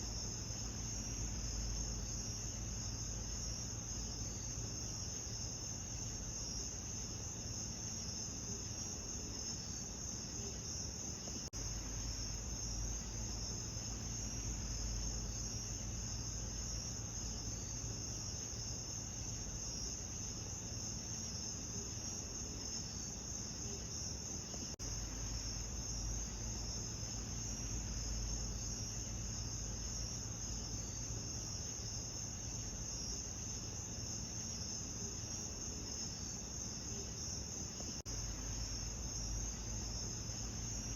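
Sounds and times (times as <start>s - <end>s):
low steady rumble: 0.0s - 7.9s, 11.3s - 21.2s, 24.4s - 34.1s, 37.8s - 40.9s
crickets chirping: 0.0s - 40.9s.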